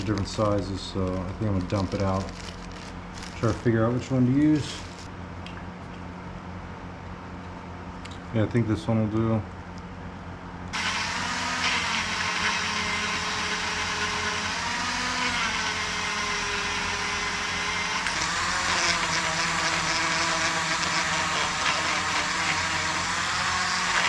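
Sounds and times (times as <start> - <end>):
rotary tool grinding: 1.3 - 5.1, 10.7 - 24.0.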